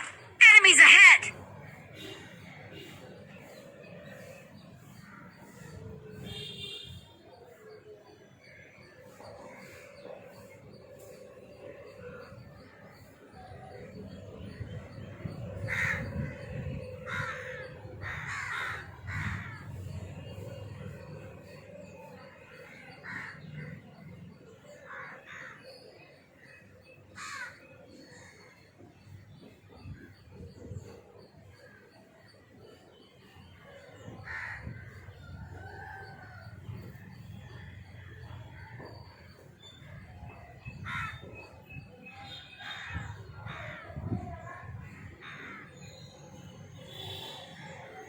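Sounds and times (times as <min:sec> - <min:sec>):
birds giving harsh calls: 0:00.0 - 0:01.3.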